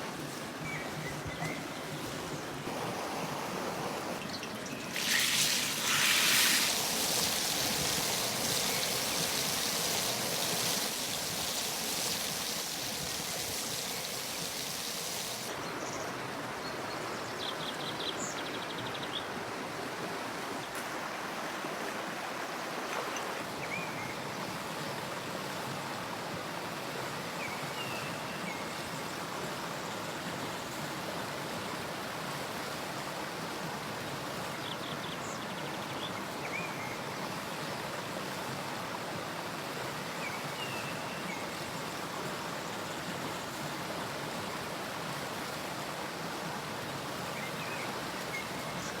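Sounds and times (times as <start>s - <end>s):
river water rushing: 0.0s - 16.6s.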